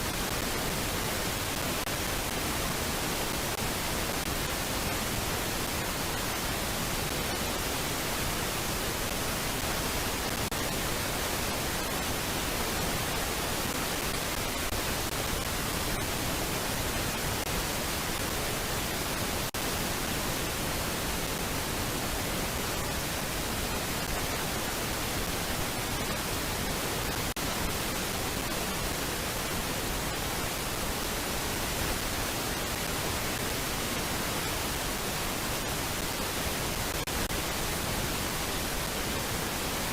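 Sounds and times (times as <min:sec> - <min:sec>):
steady static hiss: 0:00.0 - 0:39.9.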